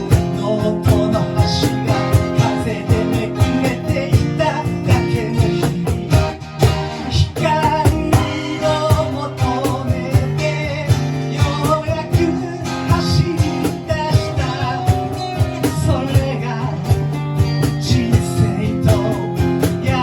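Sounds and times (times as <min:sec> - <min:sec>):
band playing rock music: 0:00.0 - 0:20.0.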